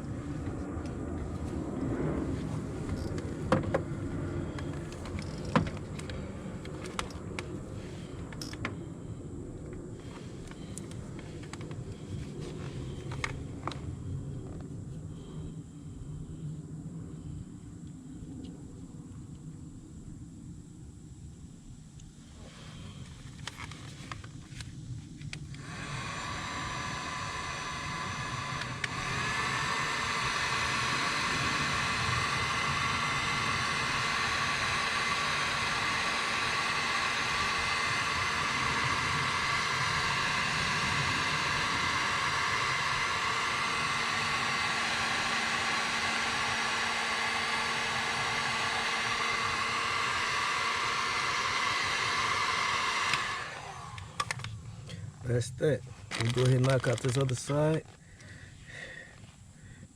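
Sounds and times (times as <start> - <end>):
heat gun blowing: 0.0 - 13.8, 22.4 - 54.9, 56.0 - 59.5.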